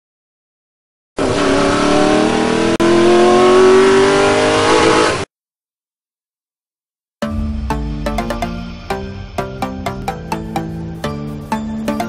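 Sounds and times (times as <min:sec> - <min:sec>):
car engine revving: 0:01.2 - 0:05.3.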